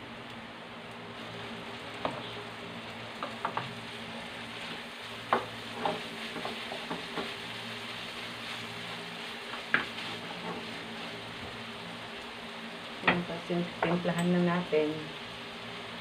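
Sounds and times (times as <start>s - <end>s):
meat sizzling in wok: 0.0s - 16.0s
spatula knocking and scraping pan: 3.2s - 3.8s, 4.6s - 7.4s, 9.5s - 10.8s.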